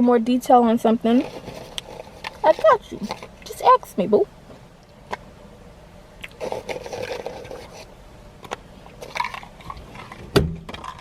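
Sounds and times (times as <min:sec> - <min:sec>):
food crunching: 0:06.2 - 0:07.9, 0:08.9 - 0:10.2.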